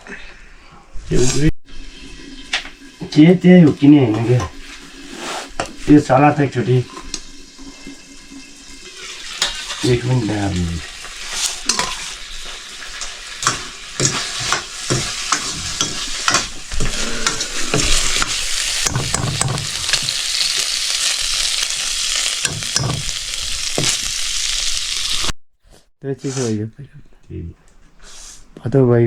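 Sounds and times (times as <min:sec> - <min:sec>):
food sizzling in a pan: 0:01.3 - 0:25.4, 0:26.2 - 0:26.6, 0:28.0 - 0:28.4
metal spoon scraping a pan: 0:09.0 - 0:10.0, 0:10.9 - 0:24.6, 0:26.2 - 0:26.6, 0:27.6 - 0:28.5.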